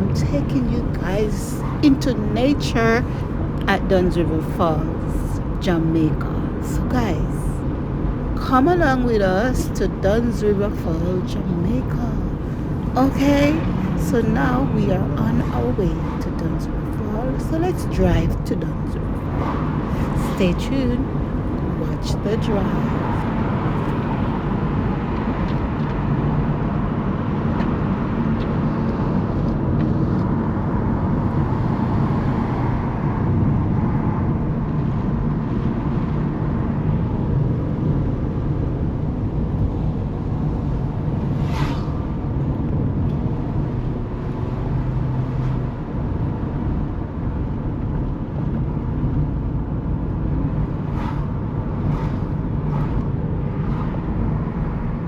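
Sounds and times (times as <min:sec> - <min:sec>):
car engine and tyre rumble: 0:07.5 - 0:08.6, 0:10.8 - 0:17.0.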